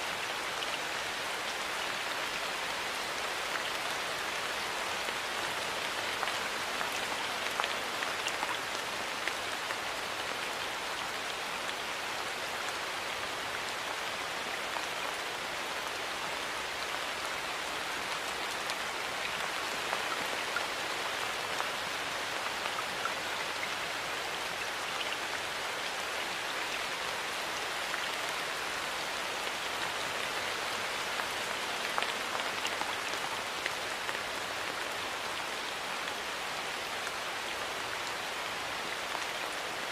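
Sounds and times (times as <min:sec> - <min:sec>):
steady rain falling: 0:00.0 - 0:39.9
raindrops ticking on surfaces: 0:00.1 - 0:39.9.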